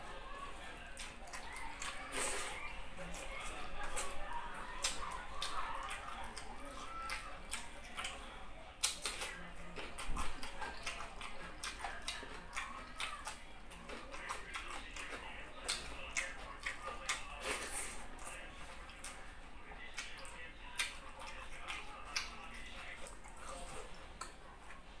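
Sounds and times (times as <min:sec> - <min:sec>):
person chewing: 0:00.8 - 0:25.0
wet lip smacks and clicks: 0:08.8 - 0:09.4, 0:19.9 - 0:22.4.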